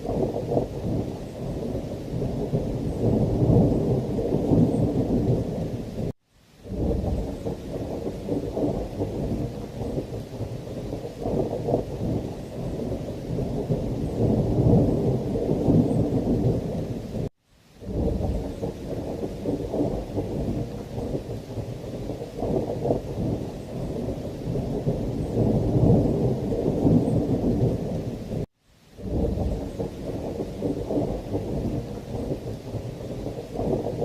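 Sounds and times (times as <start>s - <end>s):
heavy rain: 0.0s - 34.0s
thunder rumbling: 0.0s - 34.0s.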